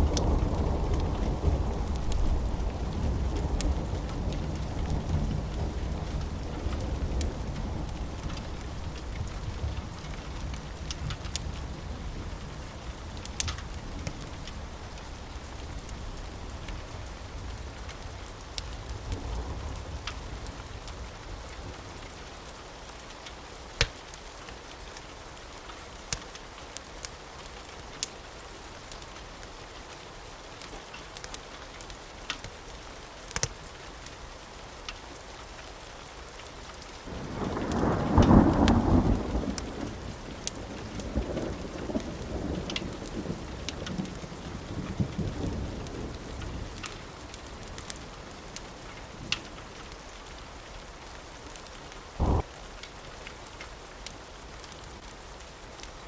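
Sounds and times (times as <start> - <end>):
sharp crackles: 0.0 - 22.2, 36.4 - 56.0
thunderclap and low rumble: 0.0 - 22.2, 37.1 - 50.4, 52.2 - 52.5
steady rain: 0.0 - 56.0.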